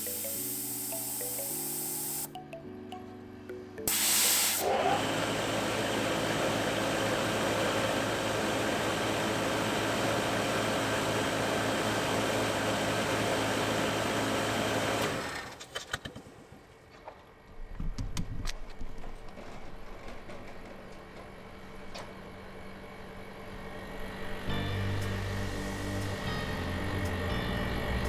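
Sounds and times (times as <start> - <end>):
air hiss: 0.0 - 2.3, 3.9 - 4.7
machine whirring with low hum: 0.0 - 2.3, 19.9 - 28.0.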